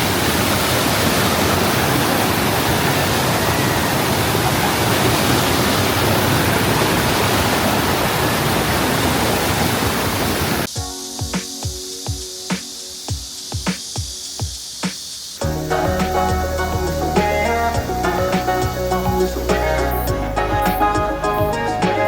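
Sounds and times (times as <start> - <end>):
stream water rushing: 0.0 - 10.7.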